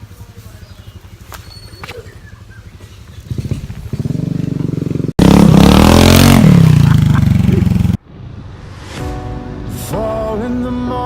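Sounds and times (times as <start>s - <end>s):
loud motorcycle engine passing: 0.0s - 8.0s
motorcycle engine running: 0.0s - 8.0s.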